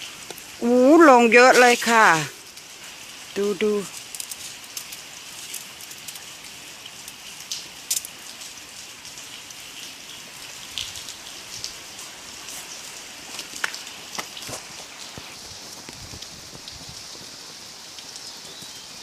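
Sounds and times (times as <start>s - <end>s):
hailstones ticking: 0.0s - 8.6s, 10.7s - 18.8s
hail falling heavily: 0.0s - 8.8s.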